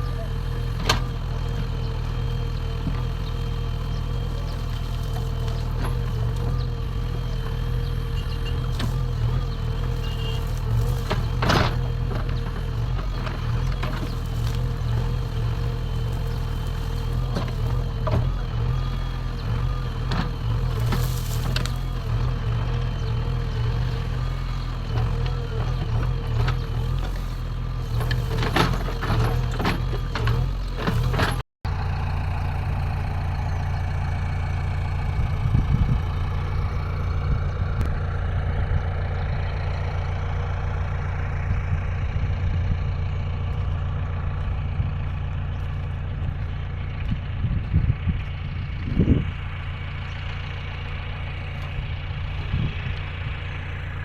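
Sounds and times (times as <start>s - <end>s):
digger arm knocks and clanks: 0.0s - 31.4s
diesel engine running: 0.0s - 54.0s.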